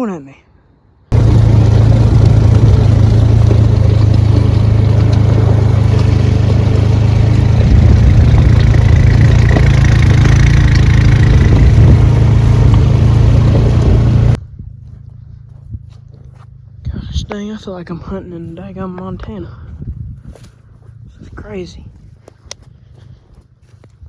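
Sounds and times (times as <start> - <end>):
atv engine running: 1.1 - 14.4.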